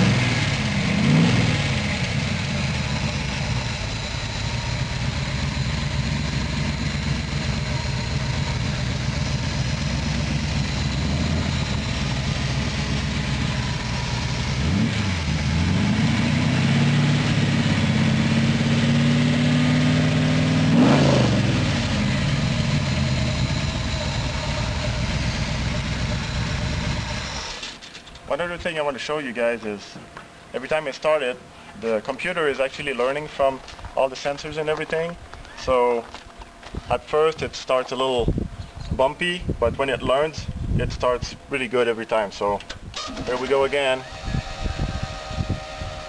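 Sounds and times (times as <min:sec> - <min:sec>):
car engine idling and revving: 0:00.0 - 0:28.3.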